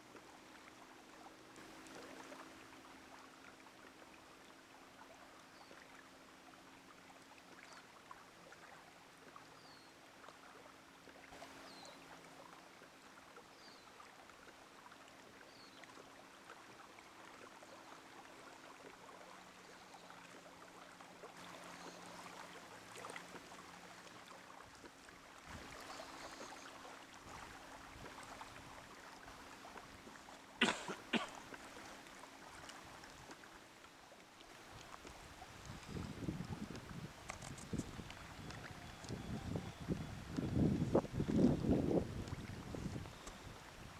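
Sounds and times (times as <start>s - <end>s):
water trickling and lapping: 0.0s - 43.9s.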